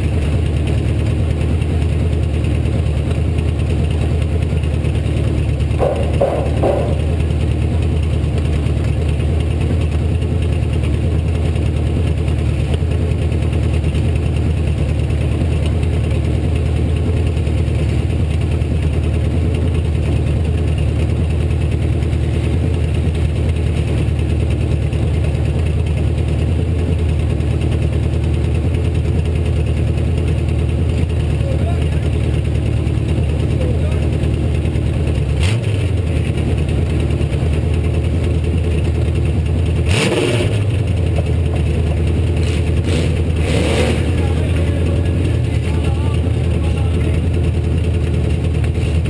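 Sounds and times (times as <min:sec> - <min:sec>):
car engine running steadily: 0:00.0 - 0:49.0.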